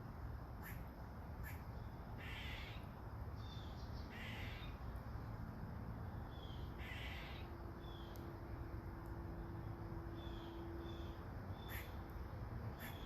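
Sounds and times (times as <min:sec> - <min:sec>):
crow cawing: 0:02.2 - 0:02.7, 0:06.8 - 0:07.4, 0:11.7 - 0:11.9.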